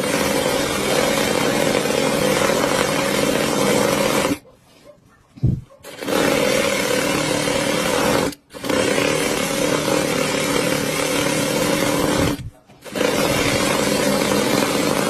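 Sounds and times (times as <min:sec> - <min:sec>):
sewing machine whirring: 0:05.8 - 0:15.0.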